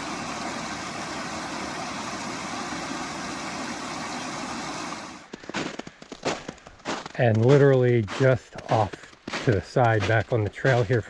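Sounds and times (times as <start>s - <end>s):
small waterfall rushing: 0.0s - 5.3s
crunching footsteps: 5.3s - 11.0s.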